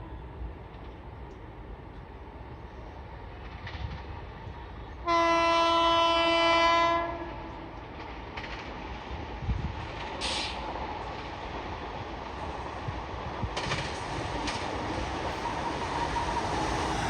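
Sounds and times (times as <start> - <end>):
rumble of running train: 0.0 - 17.0
train horn blast: 5.0 - 7.6.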